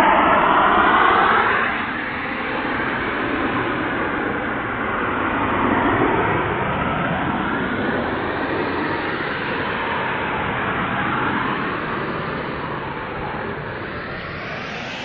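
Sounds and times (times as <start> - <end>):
steady rushing noise: 8.2 - 15.0.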